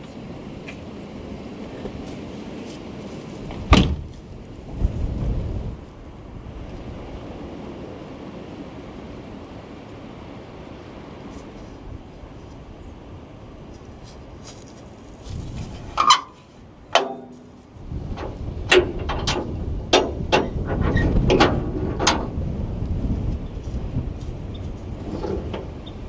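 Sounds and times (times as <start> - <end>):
strong gusting wind: 0.0 - 26.0
sharp knocks and rattles: 15.8 - 22.4.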